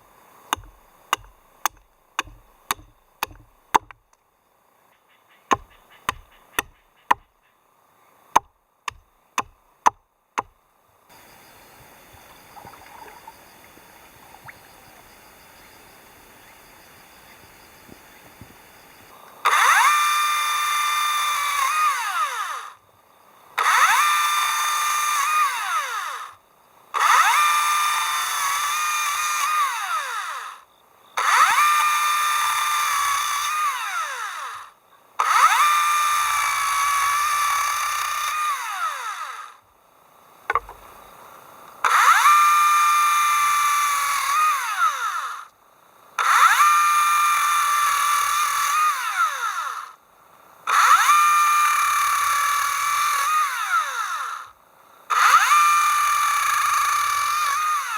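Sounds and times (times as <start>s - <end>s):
power drill motor whine: 14.3s - 22.8s, 23.6s - 26.4s, 27.0s - 30.6s, 31.2s - 39.6s, 41.8s - 45.5s, 46.2s - 50.0s, 50.7s - 54.5s, 55.1s - 57.9s.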